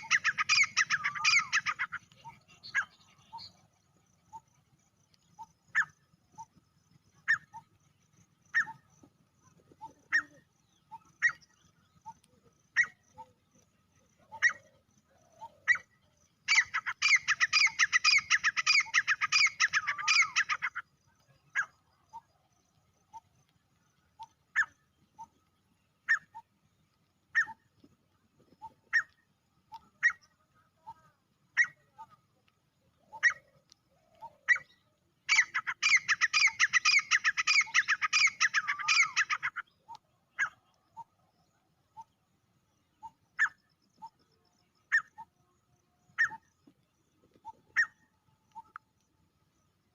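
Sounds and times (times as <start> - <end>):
francolin calling: 0.0 - 4.5, 14.1 - 22.4, 27.3 - 27.7, 32.9 - 41.2, 42.8 - 46.6.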